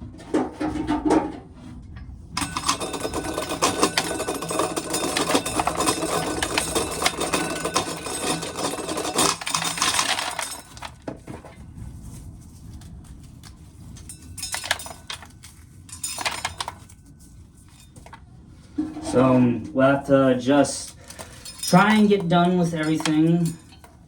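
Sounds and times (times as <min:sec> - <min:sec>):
corn sheller rattling: 0:02.4 - 0:11.5, 0:14.1 - 0:18.2, 0:20.8 - 0:24.0.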